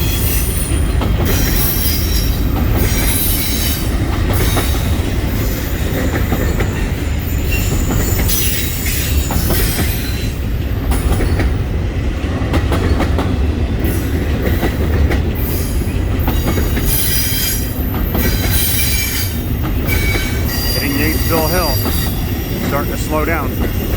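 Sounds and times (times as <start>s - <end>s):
train wheels rumbling on rail: 0.0s - 23.9s
high-pitched wheel squeal: 16.9s - 22.6s.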